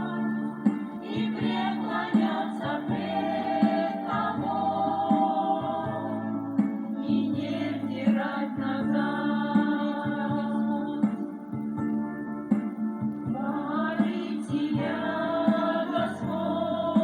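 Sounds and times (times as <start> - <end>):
voices singing in harmony: 0.0 - 11.7, 13.3 - 17.0
percussive beats: 9.6 - 17.0.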